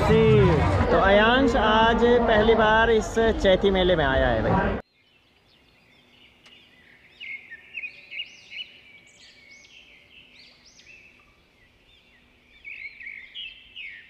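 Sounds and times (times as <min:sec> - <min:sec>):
small birds chirping and singing: 0:04.8 - 0:14.0.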